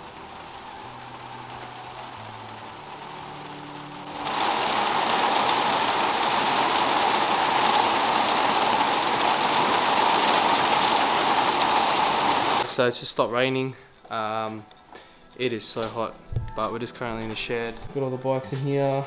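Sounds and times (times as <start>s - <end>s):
heavy rain falling: 0.0s - 12.7s.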